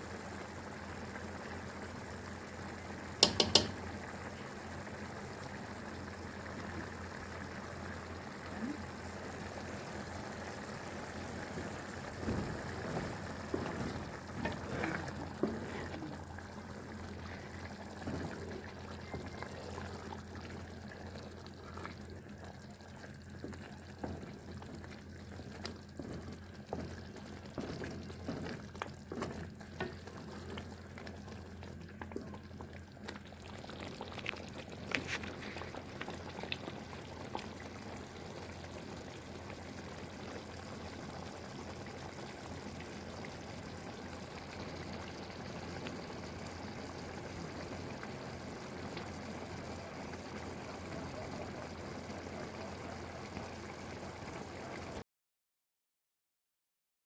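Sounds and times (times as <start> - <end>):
small clicks and knocks: 3.2 - 3.8
liquid pouring: 3.2 - 55.0.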